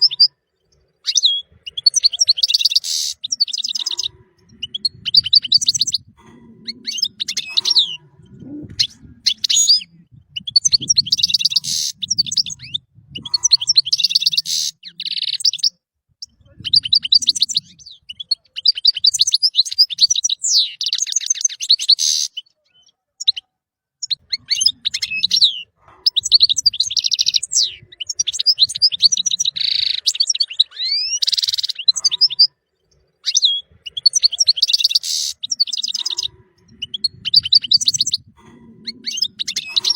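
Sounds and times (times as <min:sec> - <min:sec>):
faint low rumble: 0:04.2 - 0:11.2.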